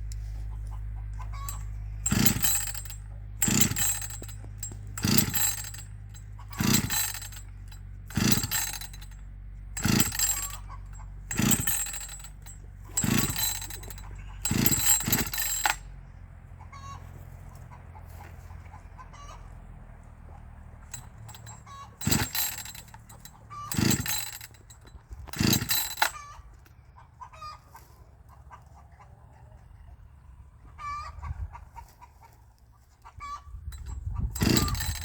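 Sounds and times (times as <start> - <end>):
chainsaw recoil starter pulls: 0.0 - 16.0, 20.8 - 26.4, 33.6 - 35.0.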